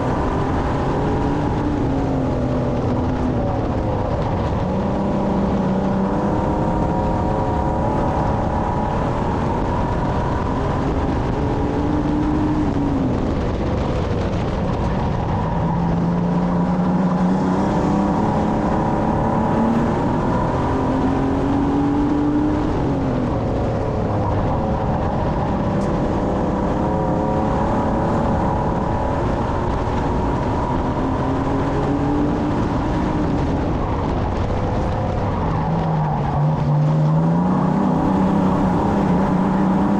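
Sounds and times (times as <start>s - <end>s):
race car engine revving: 0.0s - 39.9s
road noise: 0.0s - 39.9s.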